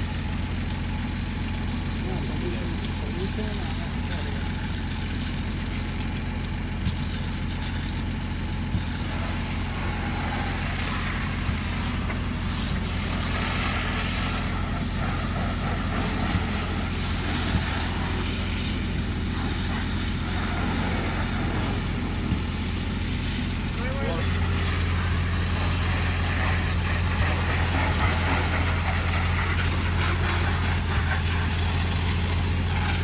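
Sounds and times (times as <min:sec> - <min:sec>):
hiss: 0:00.0 - 0:33.0
machine humming: 0:08.7 - 0:33.0.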